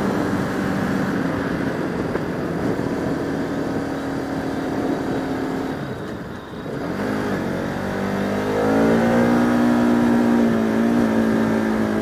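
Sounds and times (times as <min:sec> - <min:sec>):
wind rushing past microphone: 0:00.0 - 0:07.1
motorcycle engine accelerating: 0:00.0 - 0:12.0.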